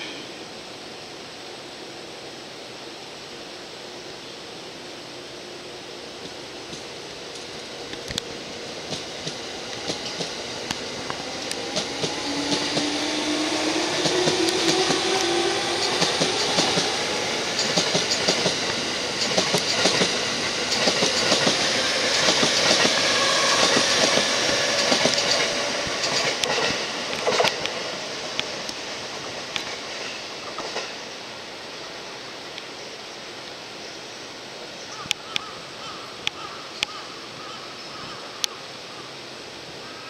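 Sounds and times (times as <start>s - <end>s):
train rumble: 5.0s - 32.7s
wheels clacking over rail joints: 14.0s - 31.1s.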